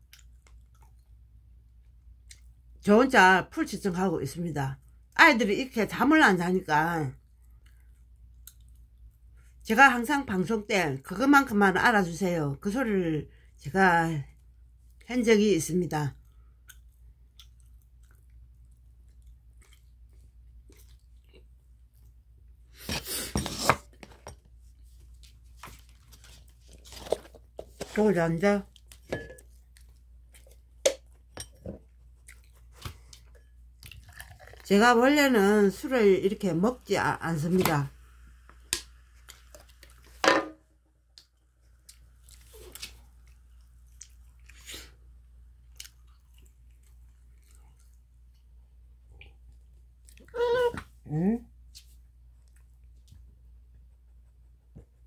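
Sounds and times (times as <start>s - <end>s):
person chewing: 0.0s - 2.6s, 7.3s - 9.6s, 16.2s - 23.7s, 28.7s - 34.6s, 41.1s - 50.4s.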